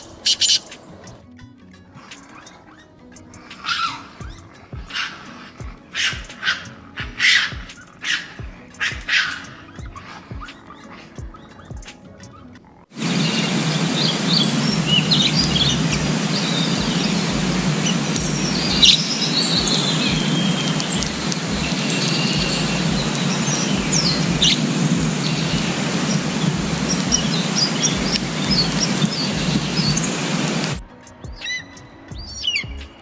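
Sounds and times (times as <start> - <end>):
songbirds chirping: 0.0 - 1.2, 2.1 - 33.0
loud rushing hiss: 13.0 - 30.8.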